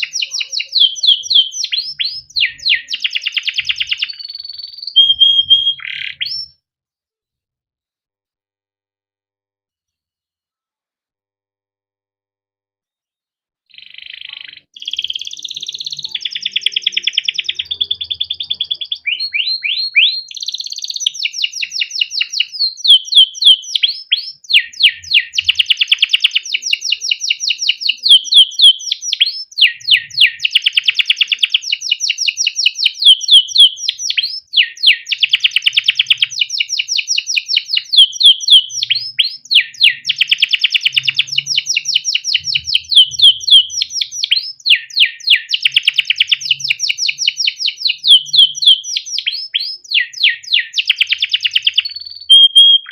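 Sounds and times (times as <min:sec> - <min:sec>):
canary singing chirps and trills: 0:00.0 - 0:06.6, 0:13.7 - 0:52.9.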